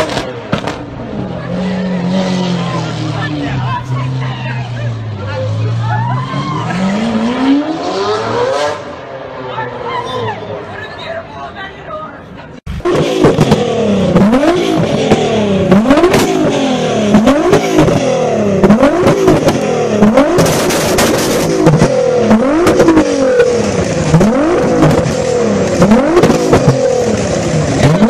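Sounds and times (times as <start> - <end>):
exhaust pops: 0.0 - 1.0, 12.7 - 28.0
car engine revving: 0.0 - 10.0, 12.7 - 28.0.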